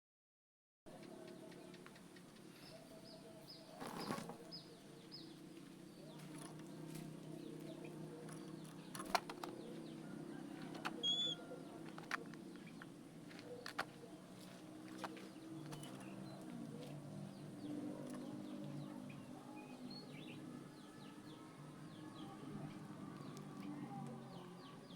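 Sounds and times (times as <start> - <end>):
bird chirping: 0.9 - 24.9
faint low hum: 0.9 - 24.9
wings fluttering: 3.7 - 4.6, 8.3 - 9.8.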